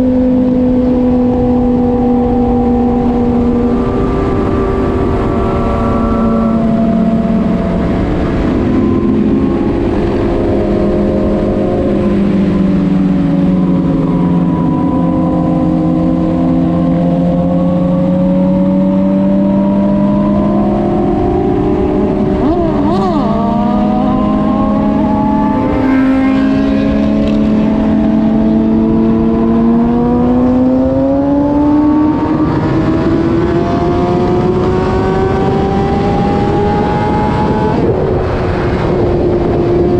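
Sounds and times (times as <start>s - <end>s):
vehicle engine cruising: 0.0s - 39.9s
brief warbling tone: 20.4s - 28.0s.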